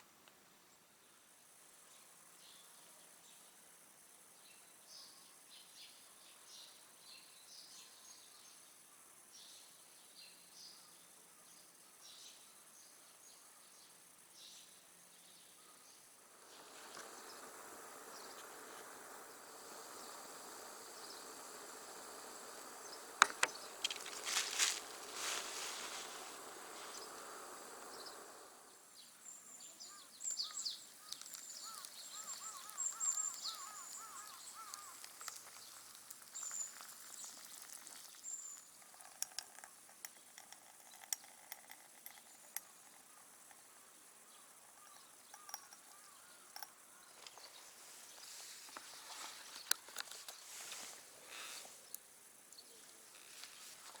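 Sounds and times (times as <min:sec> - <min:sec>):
insects chirping: 0:00.0 - 0:54.0
steady hiss: 0:14.0 - 0:54.0
birds chirping: 0:15.6 - 0:54.0.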